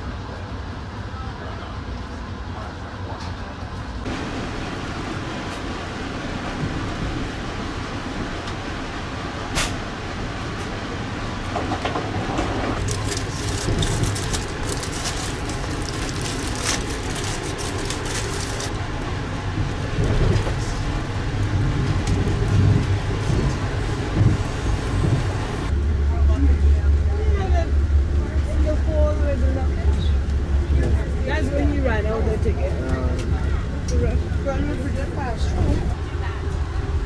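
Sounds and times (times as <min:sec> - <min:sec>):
train rumble inside coach: 0:00.0 - 0:37.0
foil wrapper crinkling: 0:12.8 - 0:18.7.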